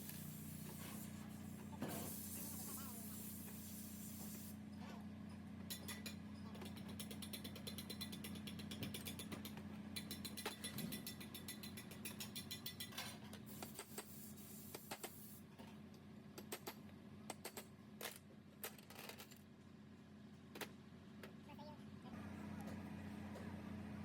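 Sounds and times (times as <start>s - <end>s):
metal tools clicking: 6.9s - 13.0s.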